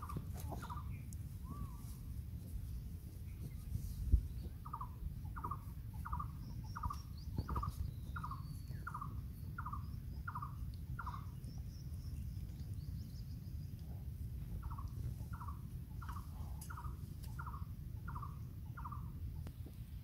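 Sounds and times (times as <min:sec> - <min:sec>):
faint high bird chirps: 0:00.0 - 0:02.1, 0:03.3 - 0:13.9
steady low rumble: 0:00.0 - 0:20.0.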